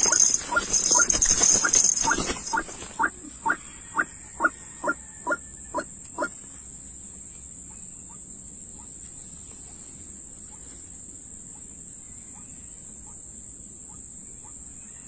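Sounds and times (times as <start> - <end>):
high-pitched insect drone: 0.0 - 6.4.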